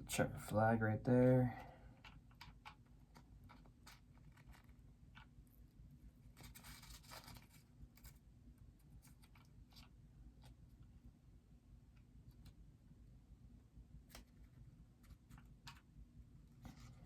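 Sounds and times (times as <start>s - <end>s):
plastic parts clicking and rubbing: 1.9s - 5.5s, 6.2s - 8.2s, 14.0s - 16.0s
scratchy rustle: 6.2s - 10.6s, 16.5s - 17.0s.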